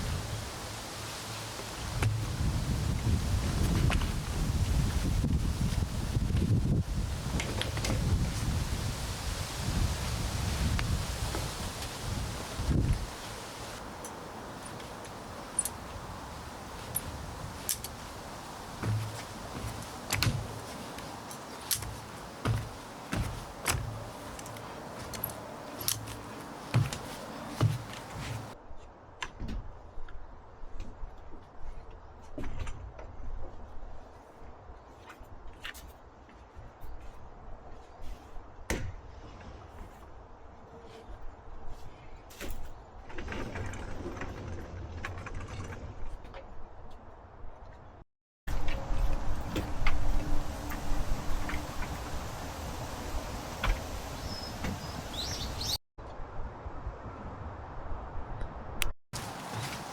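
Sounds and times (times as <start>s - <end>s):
steady background hiss: 0.0s - 28.6s, 48.8s - 55.8s
low rumble of wind: 0.0s - 59.9s
camp cot frame clicks and rattles: 13.8s - 28.6s, 42.4s - 46.3s, 59.2s - 59.9s.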